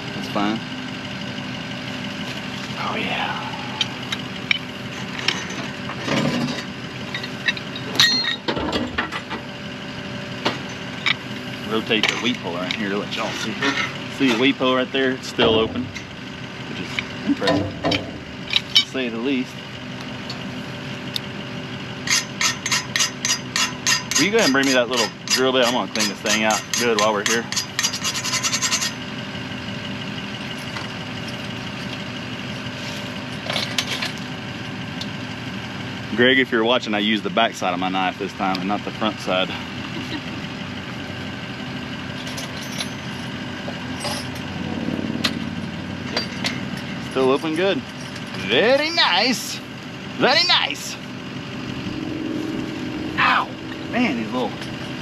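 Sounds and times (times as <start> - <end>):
engine idling: 0.0 - 55.0
ringing metallic clank: 4.1 - 9.4, 15.2 - 19.2, 42.2 - 48.6, 50.8 - 55.0
metal pipe clinks: 6.5 - 8.7, 16.9 - 19.0, 46.0 - 49.1.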